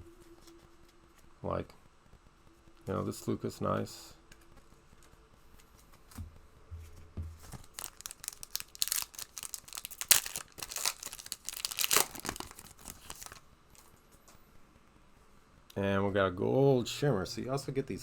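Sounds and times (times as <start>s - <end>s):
soft bumps: 6.1s - 7.9s
wrapper tearing and crinkling: 7.5s - 13.4s.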